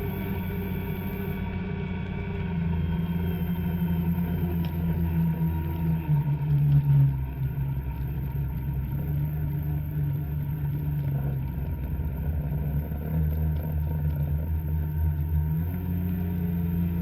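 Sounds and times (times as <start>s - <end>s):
two-stroke snowmobile engine running: 7.1s - 17.0s.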